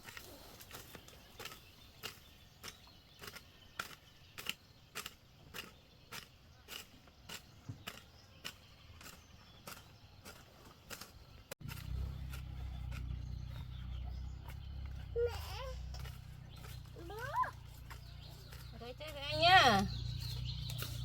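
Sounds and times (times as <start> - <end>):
hand tool chopping weeds: 0.0 - 13.8, 14.4 - 21.0.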